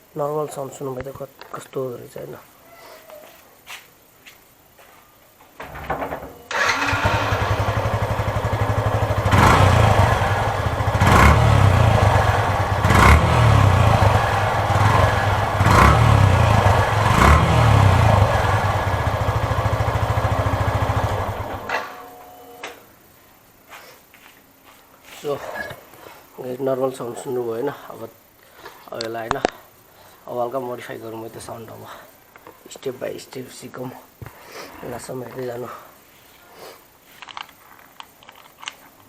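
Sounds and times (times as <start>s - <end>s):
motorcycle engine idling and revving: 6.5s - 21.7s.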